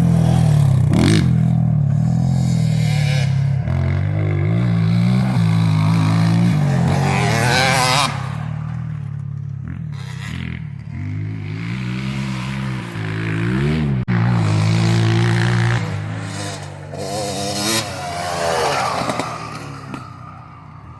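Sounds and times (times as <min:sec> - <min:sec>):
motocross bike engine revving: 0:00.0 - 0:20.9.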